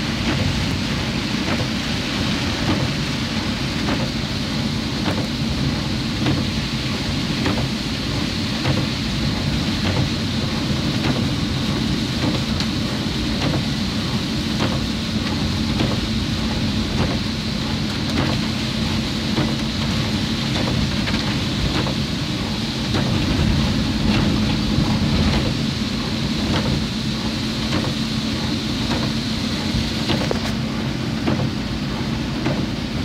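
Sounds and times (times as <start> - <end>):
heavy rain pouring: 0.0 - 33.0
low engine hum: 0.0 - 33.0.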